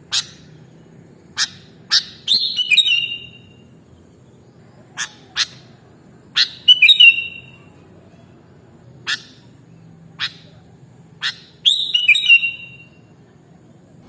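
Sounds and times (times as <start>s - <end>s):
bulbul calling: 0.0s - 3.7s, 4.8s - 7.7s, 9.0s - 9.6s, 10.2s - 10.6s, 11.2s - 13.0s.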